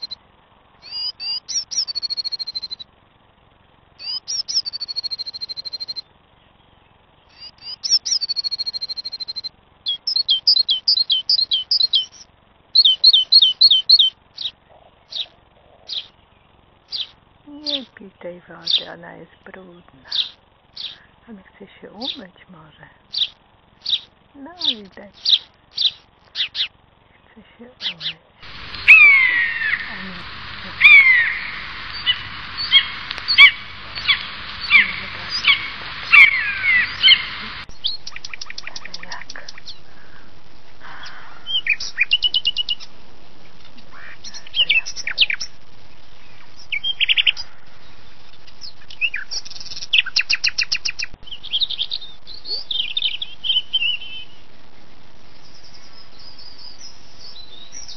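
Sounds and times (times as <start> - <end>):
high thin bird chirps: 0.0 - 0.2, 0.8 - 2.9, 4.0 - 6.1, 7.2 - 18.0, 18.6 - 18.9, 20.1 - 21.2, 23.1 - 40.4, 41.0 - 54.5, 55.3 - 57.9
songbird singing: 0.0 - 57.9
bird downward-sliding calls: 0.8 - 2.8, 4.0 - 6.0, 7.3 - 12.2, 12.8 - 16.1, 27.8 - 43.0.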